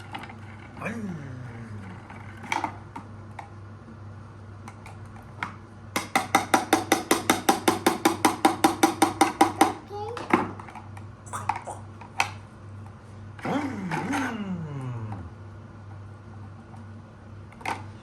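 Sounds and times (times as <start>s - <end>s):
hammer knocking: 6.0s - 9.8s.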